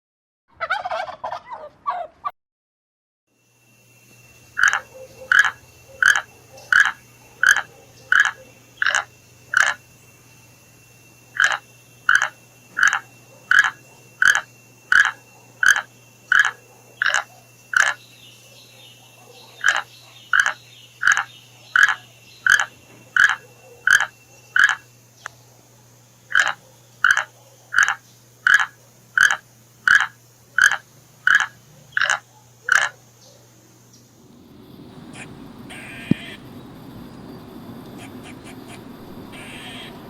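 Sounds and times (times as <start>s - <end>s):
animal calling: 4.5s - 10.0s, 11.3s - 24.9s, 26.3s - 33.0s, 34.4s - 40.0s.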